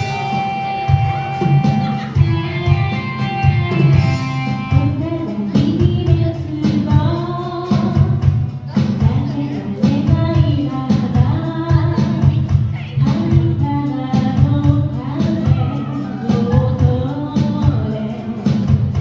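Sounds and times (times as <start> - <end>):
live band playing: 0.0 - 19.0
person singing: 4.2 - 19.0.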